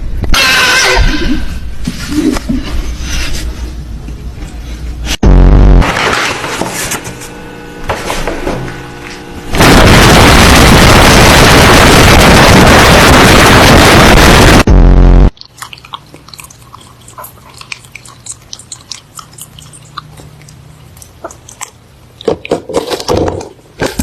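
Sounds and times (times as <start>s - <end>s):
low buzz: 5.0s - 15.3s
loud distorted noise: 5.2s - 7.7s, 9.4s - 15.3s.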